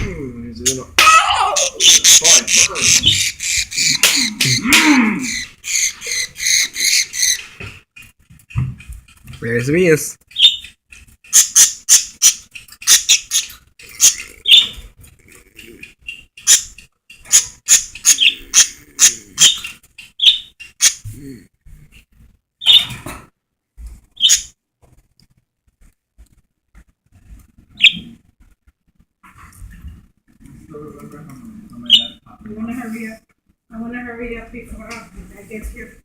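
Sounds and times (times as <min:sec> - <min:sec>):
pet birds squawking: 0:01.5 - 0:07.6, 0:10.3 - 0:21.1, 0:22.6 - 0:23.0, 0:24.1 - 0:24.6, 0:27.7 - 0:28.2.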